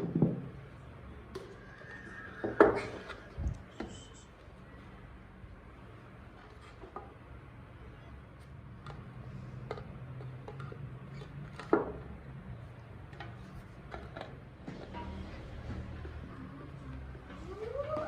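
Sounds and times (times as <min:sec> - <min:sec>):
clicks and knocks of handling: 0:08.7 - 0:12.2, 0:13.0 - 0:15.3.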